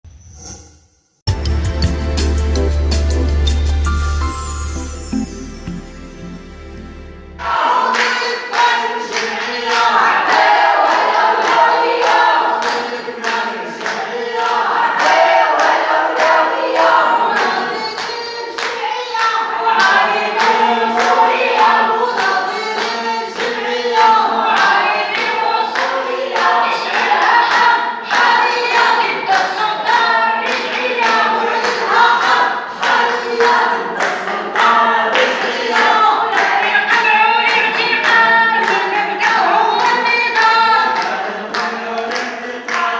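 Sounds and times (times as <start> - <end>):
crowd chanting: 7.4 - 42.9
people clapping in time: 7.4 - 42.9.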